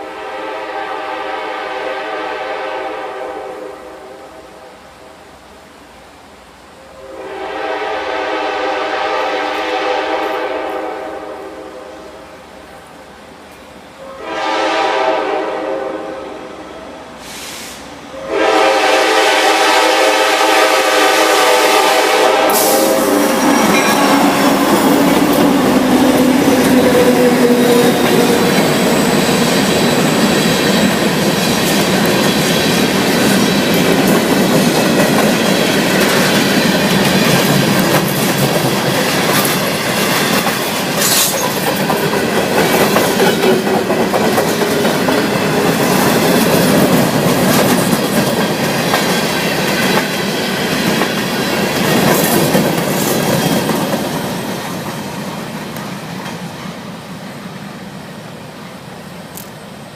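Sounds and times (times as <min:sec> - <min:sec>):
locomotive air horn: 0:00.0 - 0:04.7, 0:07.0 - 0:12.2, 0:14.0 - 0:24.1
diesel locomotives rolling past: 0:00.0 - 0:59.9
train clanks: 0:18.1 - 0:58.0.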